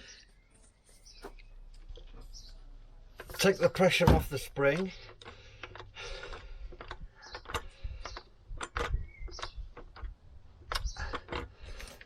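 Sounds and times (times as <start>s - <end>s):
metallic clicks and knocks: 3.1s - 12.0s.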